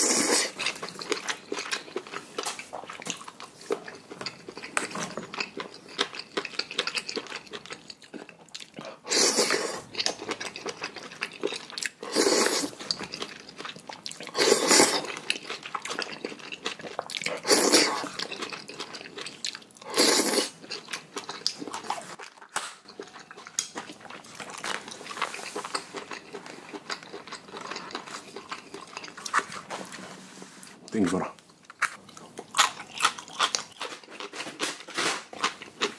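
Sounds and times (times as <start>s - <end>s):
person slurping noodles: 0.0s - 0.6s, 9.0s - 9.9s, 12.0s - 12.8s, 14.3s - 15.2s, 17.3s - 18.2s, 19.8s - 20.6s
soft chewing: 0.2s - 34.6s.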